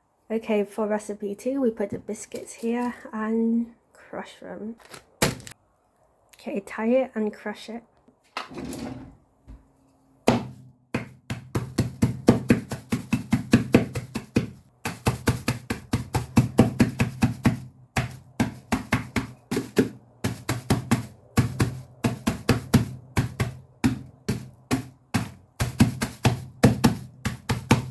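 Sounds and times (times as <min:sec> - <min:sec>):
knocks on worktop: 0:10.3 - 0:11.1.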